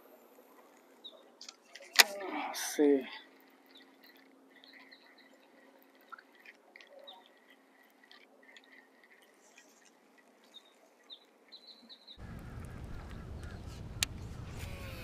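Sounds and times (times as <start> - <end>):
faint bird chirps: 3.2 - 13.8.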